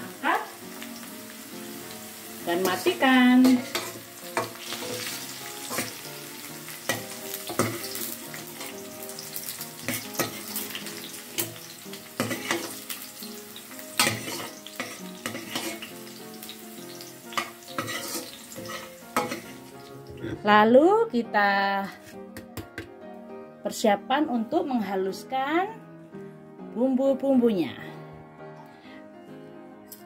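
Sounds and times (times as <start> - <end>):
hot oil sizzling in a wok: 0.0 - 20.1
metal spatula scraping a pan: 2.6 - 6.0, 6.8 - 8.9, 9.8 - 11.6, 12.2 - 12.8, 14.0 - 16.0, 17.3 - 19.7.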